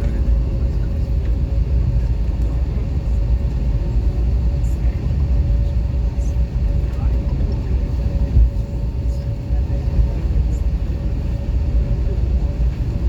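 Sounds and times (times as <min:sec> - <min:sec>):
airplane engine low rumble: 0:00.0 - 0:13.0.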